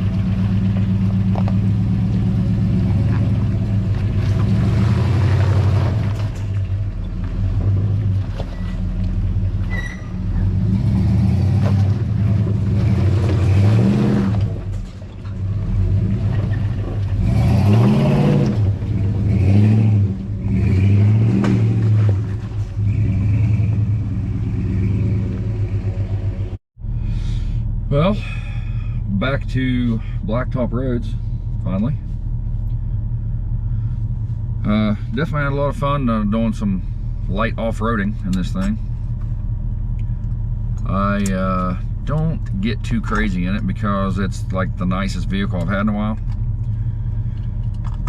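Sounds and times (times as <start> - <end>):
vehicle engine revving: 0.0 - 14.8, 15.4 - 29.2.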